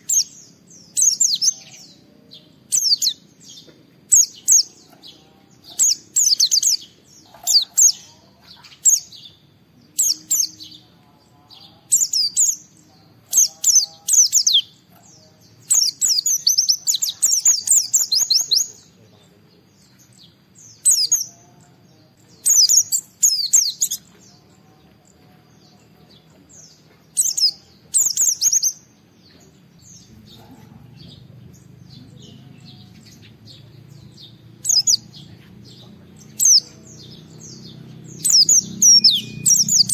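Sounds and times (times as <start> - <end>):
bird twittering: 15.6 - 18.9, 26.7 - 28.9, 31.6 - 39.9.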